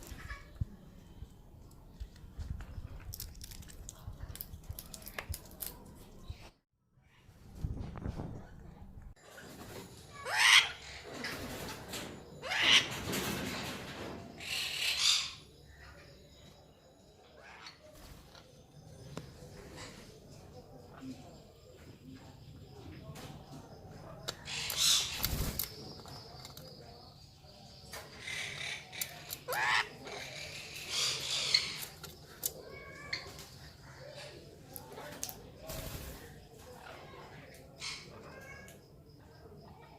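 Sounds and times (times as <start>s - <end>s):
parrot screeching calls: 10.1s - 10.9s, 12.4s - 12.9s.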